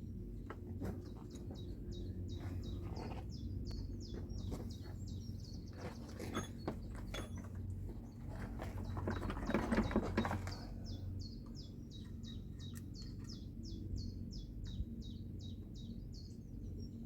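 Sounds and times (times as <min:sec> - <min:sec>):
small bird chirping: 0:09.9 - 0:17.0.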